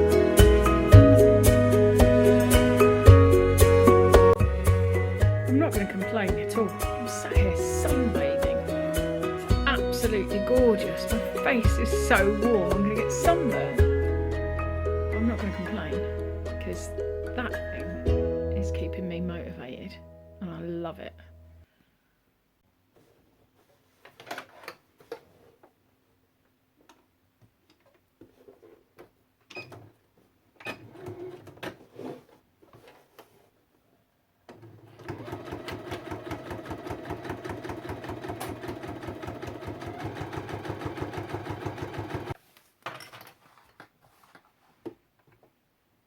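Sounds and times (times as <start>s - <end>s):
sewing machine stitching: 30.6s - 33.0s, 34.5s - 42.4s.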